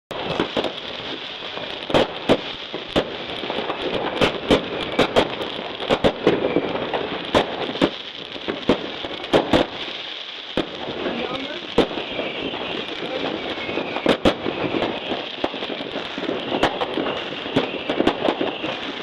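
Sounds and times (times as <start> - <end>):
crackle and distant pops: 0.1 - 19.0
fireworks bangs: 0.1 - 19.0.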